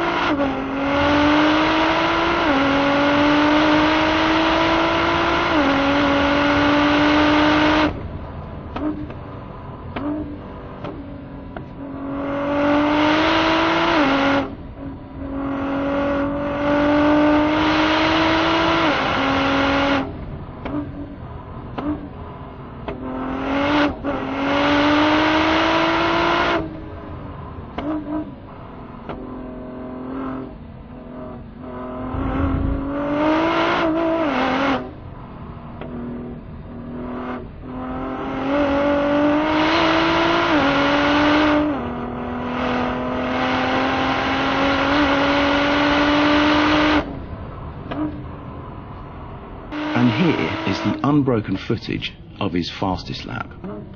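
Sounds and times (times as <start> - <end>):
car engine at full throttle: 0.0 - 53.9
low thump: 32.0 - 33.4.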